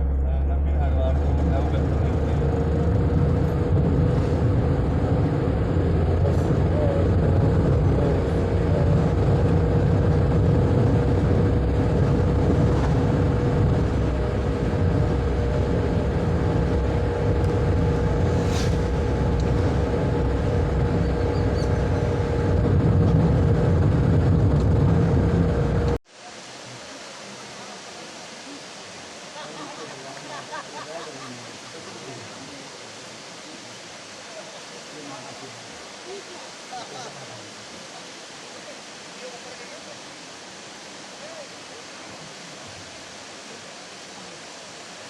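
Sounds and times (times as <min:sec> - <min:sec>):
vehicle engine and road noise: 0:00.0 - 0:26.0
even hiss: 0:18.0 - 0:20.1, 0:26.1 - 0:45.0.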